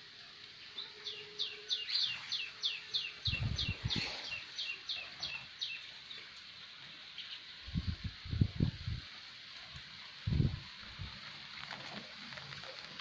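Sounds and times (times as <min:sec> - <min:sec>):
faint rain hiss: 0:00.0 - 0:13.0
small bird singing: 0:00.6 - 0:06.4, 0:07.1 - 0:08.0.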